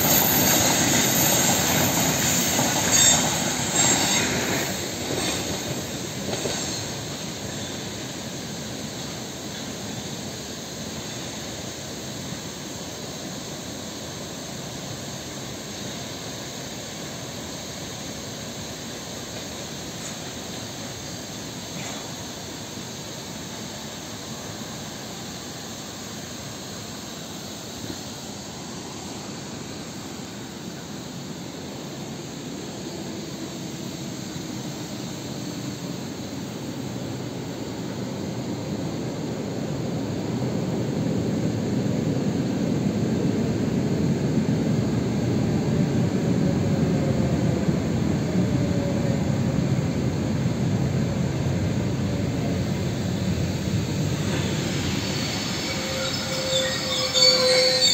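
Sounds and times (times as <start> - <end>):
electric train rumble: 0.0 - 57.9
train whine falling in pitch: 46.3 - 57.9.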